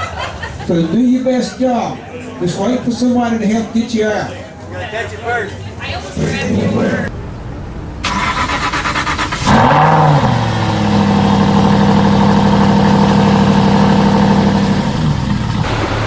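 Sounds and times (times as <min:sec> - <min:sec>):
car engine starting and revving: 0:08.0 - 0:16.0.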